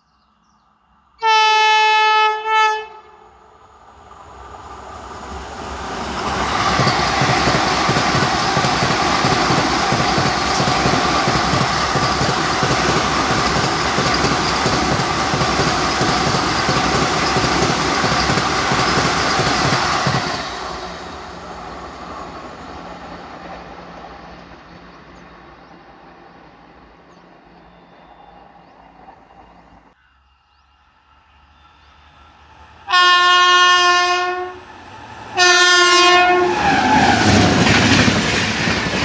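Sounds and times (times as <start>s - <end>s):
train passing: 2.6s - 30.0s, 31.0s - 39.0s
wheels clattering over rail joints: 6.2s - 20.5s.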